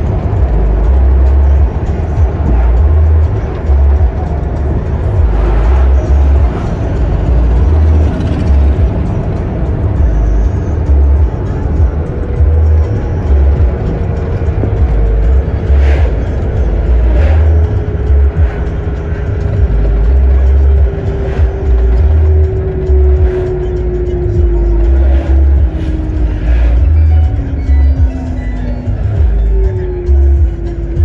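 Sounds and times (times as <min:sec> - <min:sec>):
heavy low thudding: 0:00.0 - 0:09.1, 0:09.8 - 0:31.0
motor vehicle engine drone: 0:00.0 - 0:31.0
music: 0:00.0 - 0:31.0.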